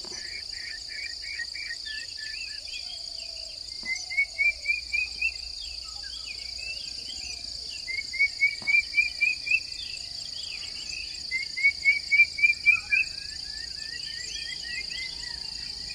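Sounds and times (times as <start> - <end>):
faint bird chirps: 0.0 - 15.9.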